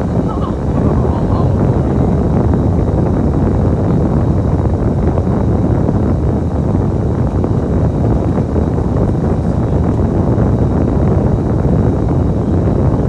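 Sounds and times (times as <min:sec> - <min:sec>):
bus engine rumble: 0:00.0 - 0:05.2.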